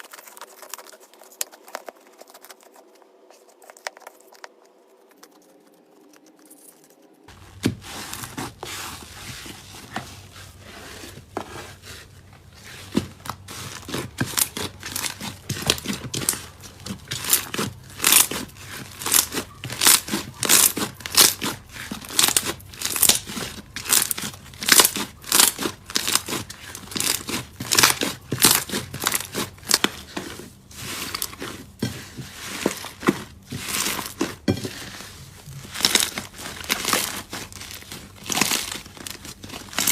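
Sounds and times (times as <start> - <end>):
slime squeezed crackling and popping: 13.9 - 30.0.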